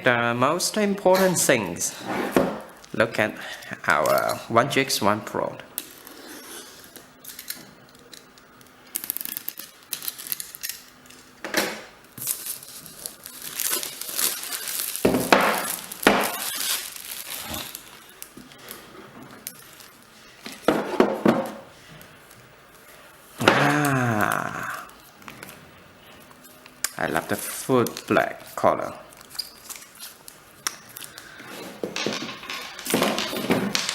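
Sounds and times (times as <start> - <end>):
packaging rustling and crinkling: 6.8 - 11.3, 12.0 - 20.7, 24.9 - 32.1.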